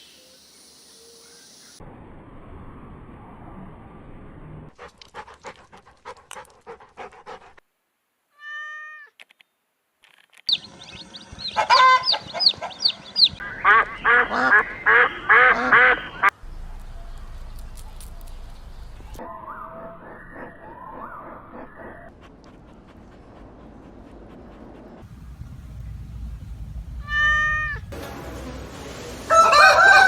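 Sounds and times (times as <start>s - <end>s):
background noise: 4.8s - 19.2s
high falling animal calls: 10.5s - 16.3s
many overlapping animal calls: 10.5s - 16.9s, 19.2s - 25.0s
animal call: 11.3s - 16.3s.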